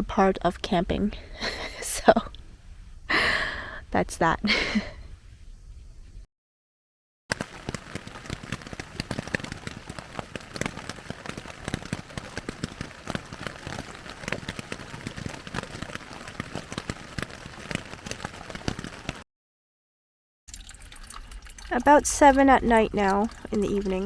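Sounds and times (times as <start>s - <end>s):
steady rain drops: 7.3s - 19.2s, 20.5s - 24.0s.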